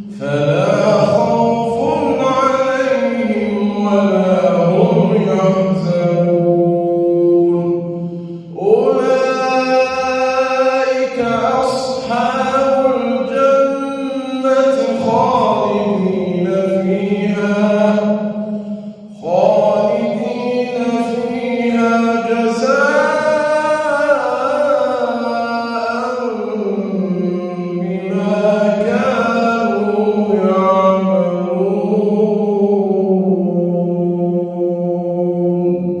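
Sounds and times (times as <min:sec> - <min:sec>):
man reciting melodically: 0:00.0 - 0:36.0.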